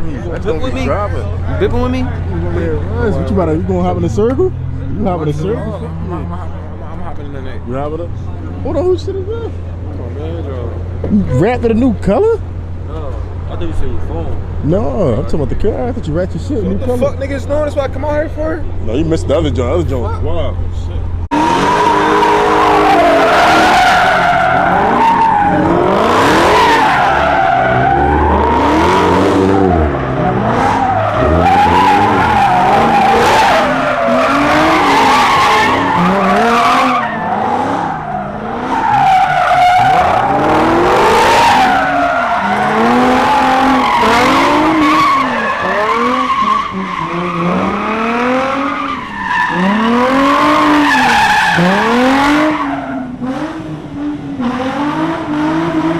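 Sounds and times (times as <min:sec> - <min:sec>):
car engine revving: 0:00.0 - 0:55.9
tyres squealing: 0:21.3 - 0:53.4.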